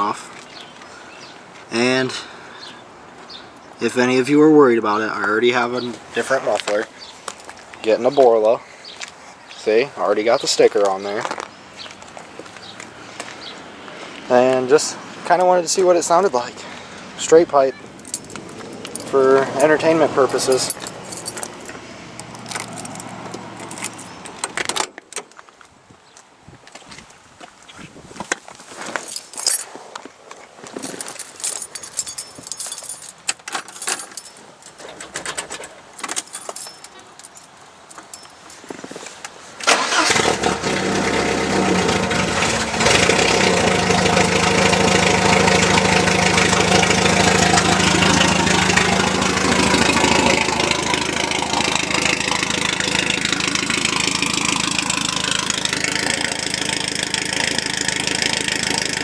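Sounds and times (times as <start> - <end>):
car engine starting and idling: 39.6 - 59.0.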